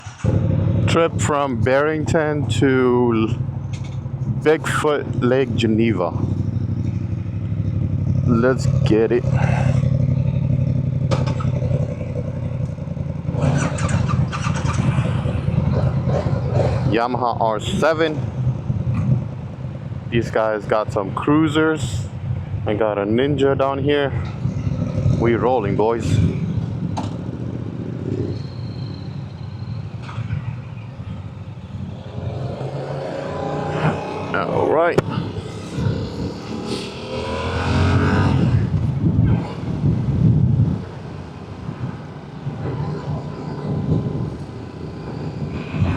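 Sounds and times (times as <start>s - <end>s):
rattly noise: 0.0s - 22.7s
road noise: 0.0s - 45.9s
wind: 0.0s - 45.9s
motorcycle engine idling: 0.1s - 34.2s.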